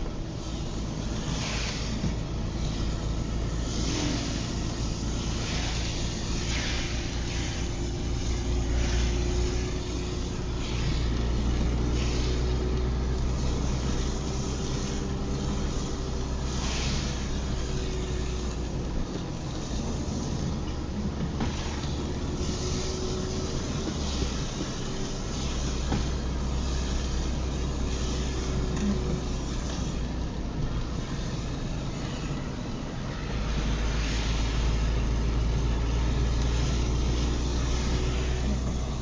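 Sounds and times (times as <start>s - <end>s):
engine and road rumble: 0.0s - 39.0s
windshield wiper swish: 0.8s - 31.6s.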